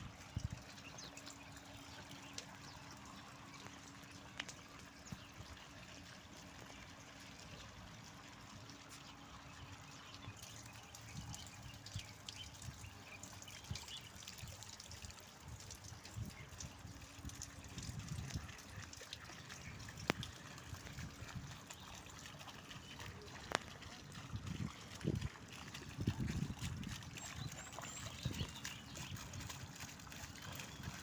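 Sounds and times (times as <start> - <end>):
water trickling: 0.0 - 31.0
small birds chirping: 8.8 - 14.6, 25.8 - 31.0.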